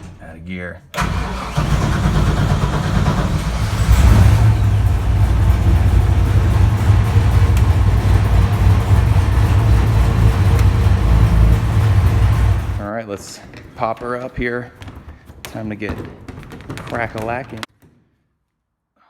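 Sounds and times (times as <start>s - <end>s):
deep loud engine running: 1.0s - 12.8s.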